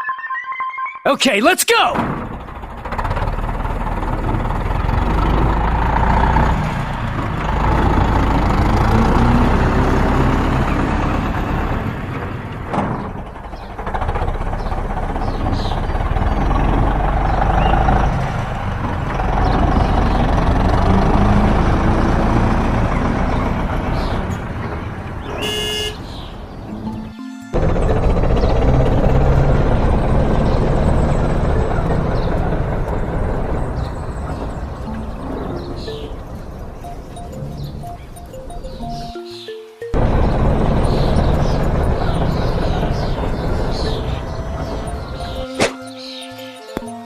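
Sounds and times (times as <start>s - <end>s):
short pitched tone: 0.0s - 1.3s
heavy vehicle engine running: 2.0s - 39.2s, 39.8s - 45.6s.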